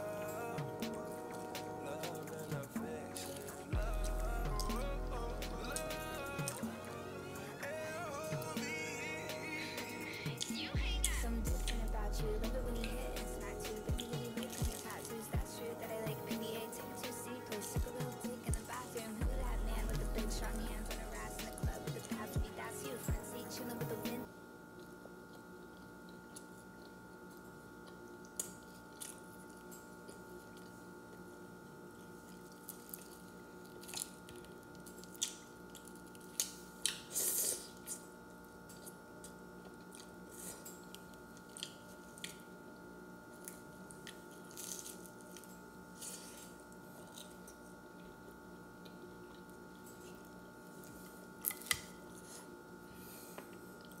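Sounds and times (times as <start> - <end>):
food crunching: 0.0 - 23.1, 24.7 - 52.6, 53.3 - 54.0
faint steady hum: 0.0 - 54.0
person biting and chewing: 24.8 - 30.8, 32.3 - 38.0, 43.4 - 52.4.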